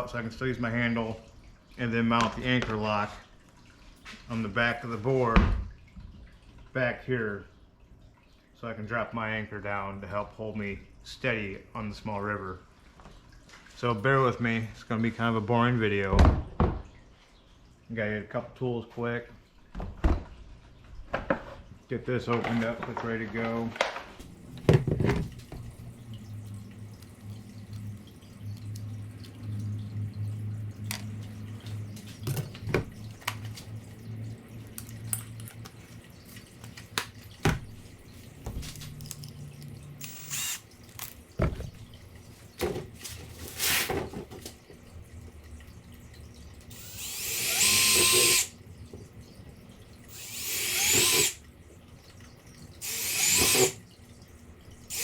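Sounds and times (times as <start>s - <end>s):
power drill boring into plastic: 40.0s - 40.6s, 46.7s - 48.5s, 50.1s - 51.4s, 52.8s - 53.8s.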